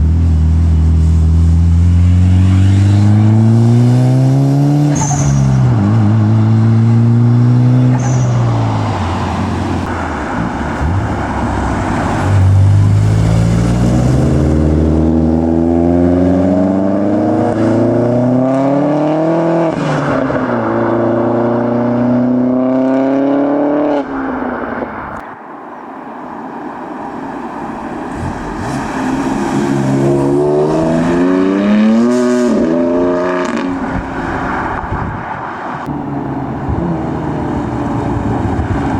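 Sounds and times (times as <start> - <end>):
car engines revving: 0.0 - 38.9.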